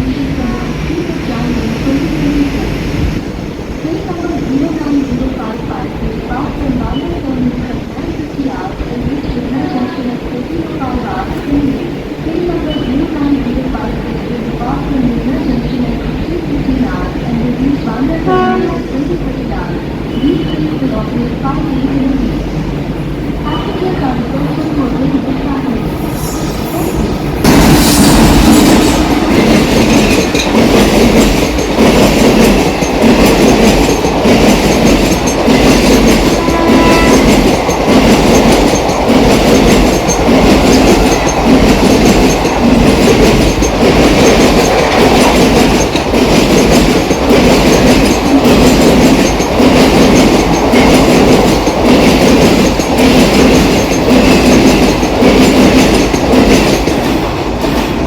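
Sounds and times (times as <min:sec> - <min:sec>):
train wheels clattering over rails: 0:27.4 - 0:58.0.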